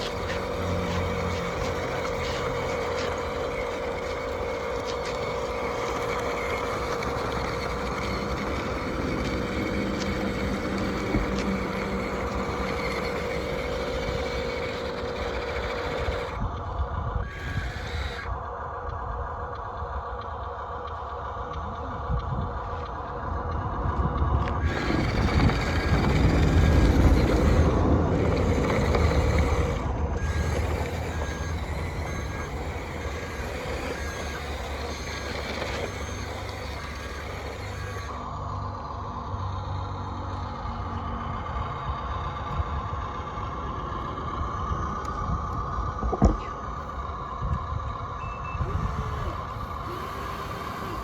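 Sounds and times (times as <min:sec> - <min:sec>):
toy motor whining: 0:00.0 - 0:51.0
reversing beep: 0:48.2 - 0:49.4.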